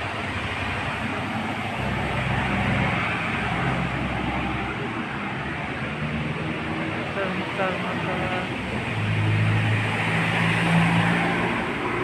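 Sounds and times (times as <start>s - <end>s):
motor vehicle passing: 0.0s - 12.0s.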